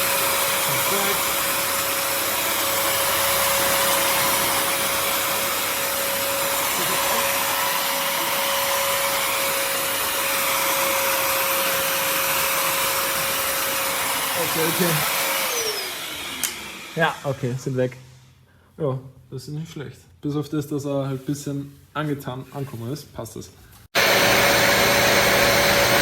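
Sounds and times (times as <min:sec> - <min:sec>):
wet-dry vacuum running: 0:00.0 - 0:17.6, 0:24.0 - 0:26.0.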